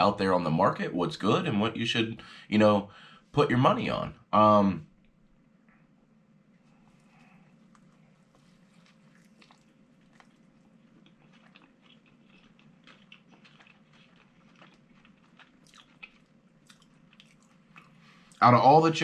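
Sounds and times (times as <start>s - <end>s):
low steady hum: 0.0s - 19.0s
person chewing crispy food: 6.7s - 18.4s.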